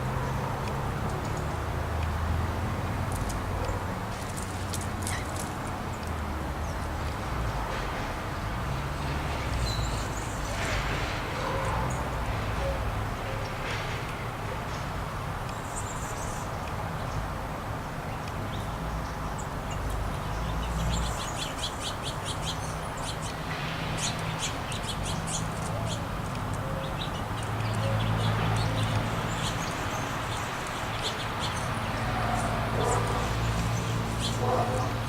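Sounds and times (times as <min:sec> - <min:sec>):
small songbirds chirping: 0:08.8 - 0:10.9, 0:14.7 - 0:35.0.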